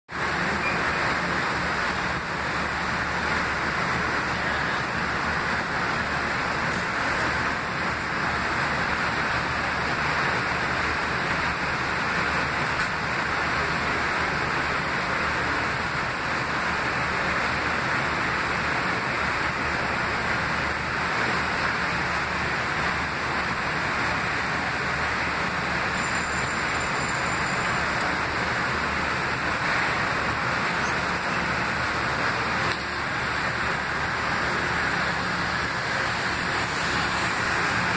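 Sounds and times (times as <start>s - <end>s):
electric railcar hiss and hum: 0.1s - 37.9s.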